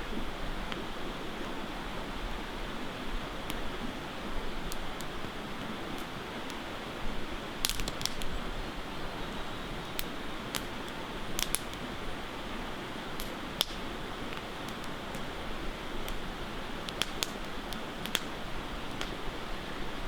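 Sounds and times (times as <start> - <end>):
campfire crackling and popping: 3.2 - 8.6, 9.7 - 19.5.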